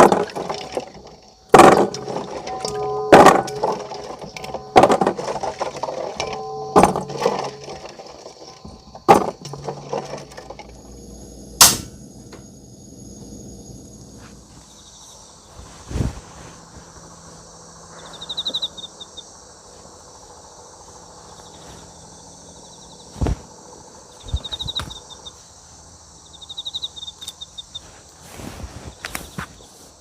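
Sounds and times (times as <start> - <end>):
faint steady high tone: 0.1 - 15.2
sharp cracks and knocks: 11.6 - 12.0.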